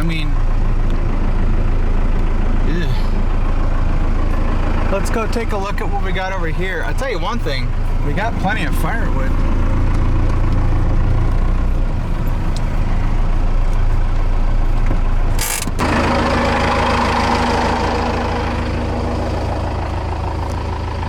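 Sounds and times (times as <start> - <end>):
diesel engine running slowly: 0.0 - 21.0.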